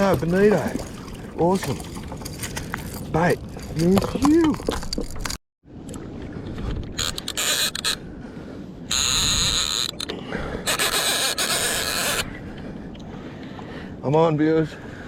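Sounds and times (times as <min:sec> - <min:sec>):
fishing reel whirring: 0:10.7 - 0:12.2.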